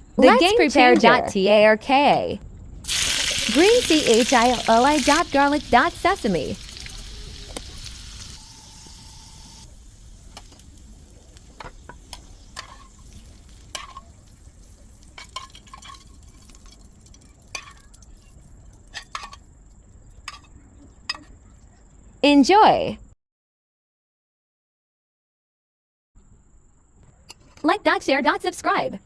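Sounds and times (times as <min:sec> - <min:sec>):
spices sizzling in hot oil: 0:02.8 - 0:21.7
utensil tapping a pan: 0:10.2 - 0:18.3, 0:18.9 - 0:19.4, 0:20.3 - 0:20.5, 0:21.1 - 0:21.4.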